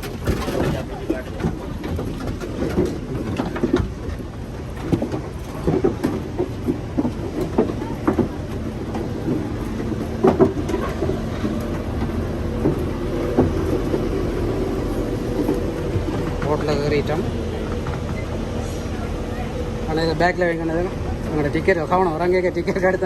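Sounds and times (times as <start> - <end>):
knocks and clunks of boarding: 0.0 - 18.4
steady low rumble: 0.0 - 23.0.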